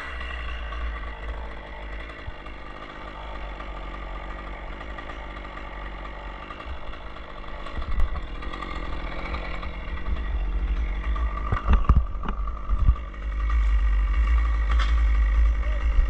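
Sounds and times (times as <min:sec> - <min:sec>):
engine running: 0:00.0 - 0:16.0
sharp knocks: 0:11.2 - 0:13.1.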